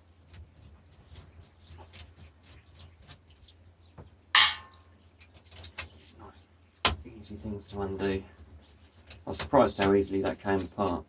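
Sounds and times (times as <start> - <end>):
small birds chirping: 0.0 - 11.0
sharp clatter: 4.4 - 4.8.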